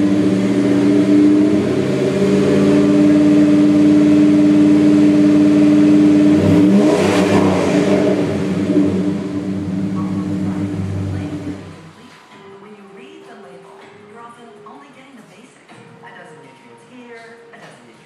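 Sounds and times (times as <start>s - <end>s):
car engine exhaust revving: 0.0s - 11.9s
rough exhaust rush: 0.0s - 11.9s.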